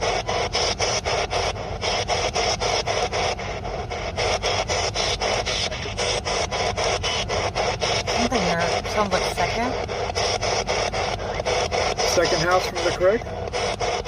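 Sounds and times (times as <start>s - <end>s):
chopped radio static hiss: 0.0s - 14.0s.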